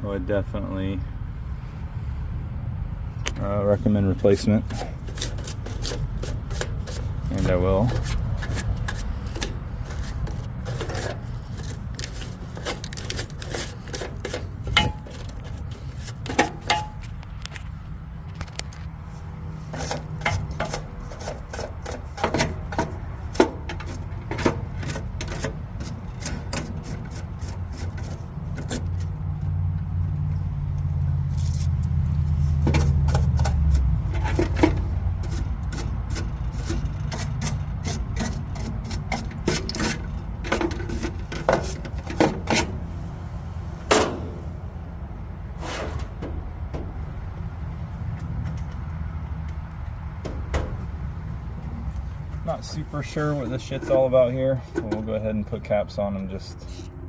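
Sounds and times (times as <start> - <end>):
low steady rumble: 0.0 - 57.0
tools clicking and scraping: 4.2 - 19.0, 19.6 - 42.9.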